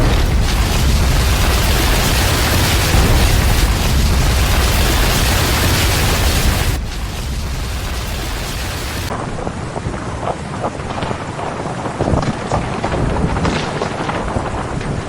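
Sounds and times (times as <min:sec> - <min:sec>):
deep rumble: 0:00.0 - 0:09.1
heavy rain hiss: 0:00.0 - 0:09.1.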